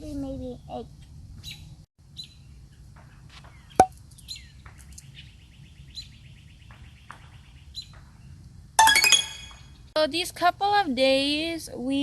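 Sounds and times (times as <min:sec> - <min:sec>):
small birds chirping: 0:00.4 - 0:08.5
bird trill: 0:08.8 - 0:09.9.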